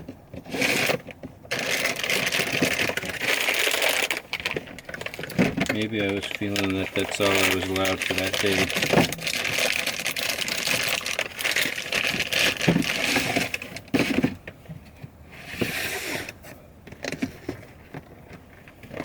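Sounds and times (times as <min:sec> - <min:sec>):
jars rattling in a bin: 0:00.0 - 0:14.4.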